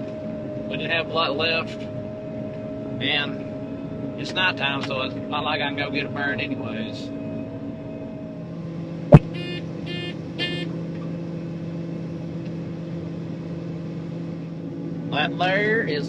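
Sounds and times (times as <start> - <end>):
combine harvester running: 8.6 - 16.0
electronic beeps: 9.1 - 10.7.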